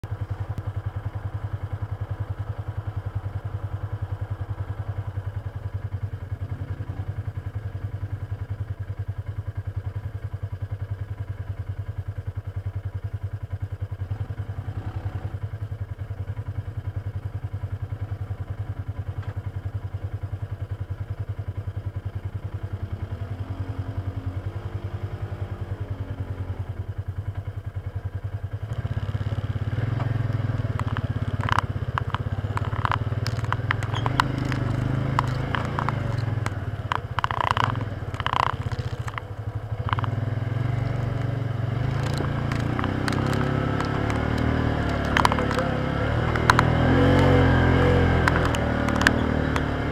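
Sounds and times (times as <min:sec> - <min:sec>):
utility vehicle engine revving: 0:14.0 - 0:15.5, 0:22.4 - 0:27.4, 0:28.5 - 0:49.9.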